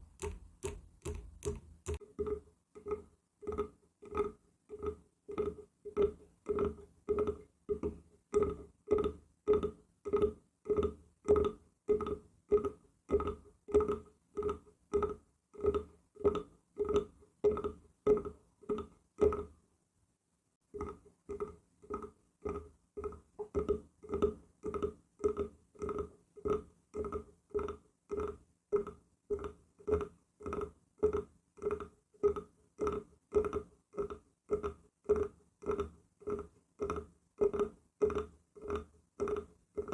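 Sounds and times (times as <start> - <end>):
tapping on wood: 0.2 - 2.0.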